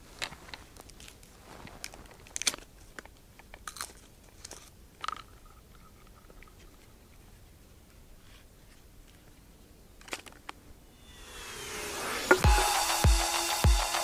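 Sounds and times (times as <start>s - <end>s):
crunching and clicking handling: 0.0s - 5.5s
faint thin tone: 10.9s - 12.9s.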